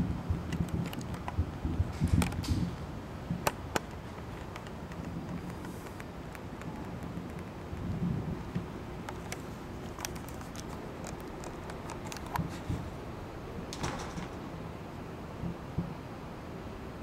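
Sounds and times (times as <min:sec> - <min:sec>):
fireworks crackles: 0:00.0 - 0:13.0
steady background rumble: 0:00.0 - 0:17.0.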